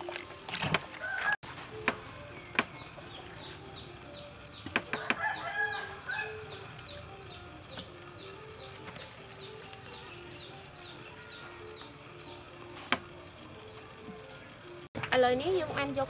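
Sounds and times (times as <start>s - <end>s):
bird clucking calls: 1.0s - 13.1s.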